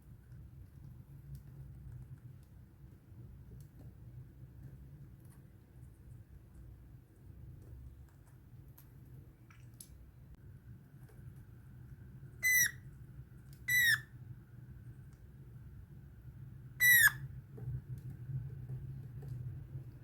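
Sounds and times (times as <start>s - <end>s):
parrot whistled calls: 12.4s - 12.8s, 13.7s - 14.1s, 16.8s - 17.2s.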